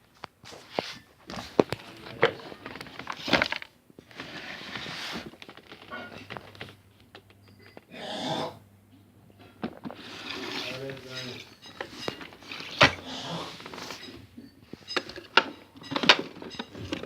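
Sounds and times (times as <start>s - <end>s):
packaging rustling: 0.6s - 6.8s, 9.6s - 14.2s.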